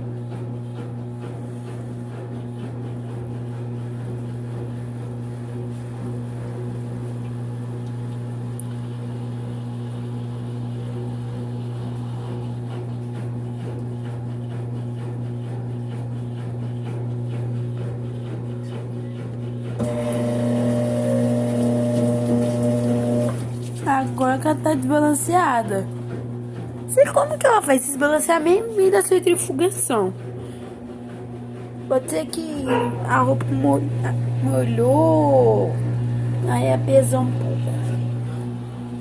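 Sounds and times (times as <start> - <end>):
washing machine spinning: 0.0 - 39.0.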